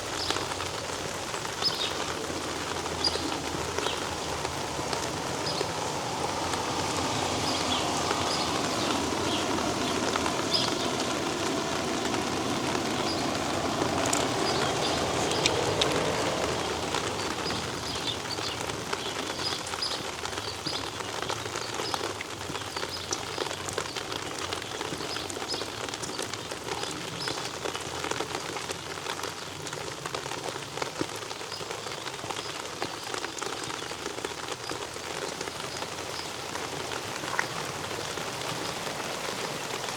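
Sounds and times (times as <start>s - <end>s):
rain on hard surfaces: 0.0s - 39.9s.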